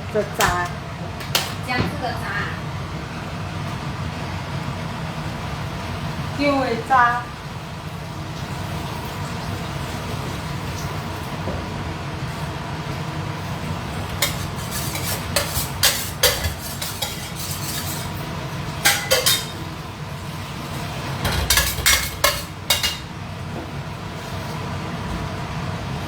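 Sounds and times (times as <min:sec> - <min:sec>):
metallic clinks of kitchen utensils: 0:14.2 - 0:18.2, 0:18.8 - 0:19.6, 0:21.3 - 0:23.1.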